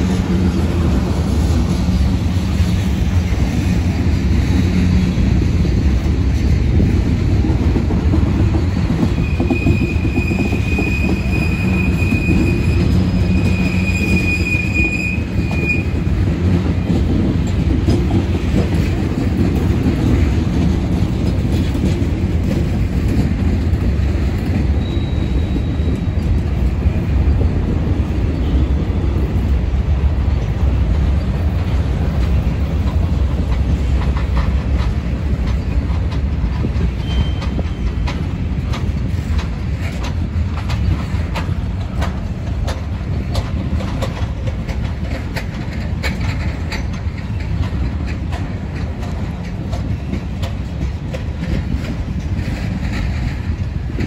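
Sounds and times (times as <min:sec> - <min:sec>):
freight train wheels rumbling: 0:00.0 - 0:54.0
high wheel squeal: 0:09.1 - 0:16.1, 0:24.7 - 0:26.2, 0:37.0 - 0:37.8.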